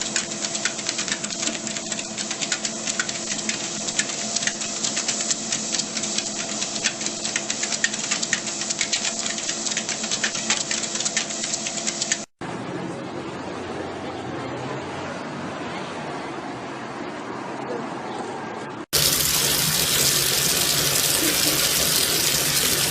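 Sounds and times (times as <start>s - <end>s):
rapid irregular clicks: 0.0s - 12.4s, 19.0s - 22.9s.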